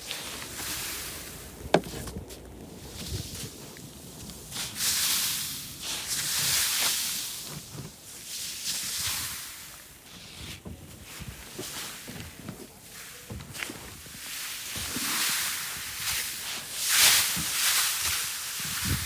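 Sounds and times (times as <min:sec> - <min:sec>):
sweeping snow: 0:00.0 - 0:09.5.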